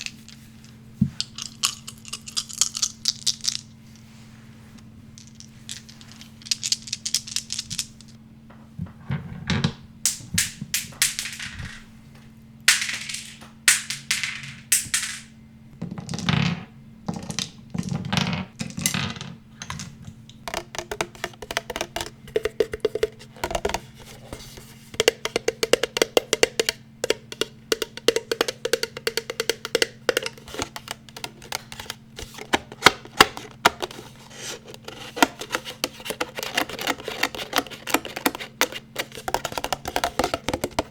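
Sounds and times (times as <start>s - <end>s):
fast ringing tapping: 25.0s - 31.8s.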